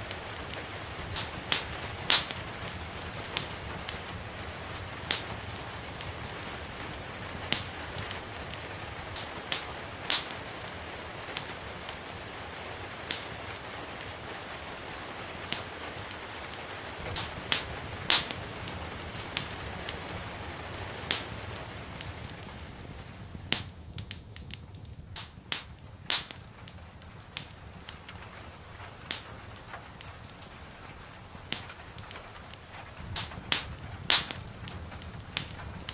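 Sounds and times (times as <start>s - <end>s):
gentle rain hissing: 0.0s - 35.9s
low rumble of flames: 0.0s - 35.9s
wood fire crackling: 0.0s - 35.9s.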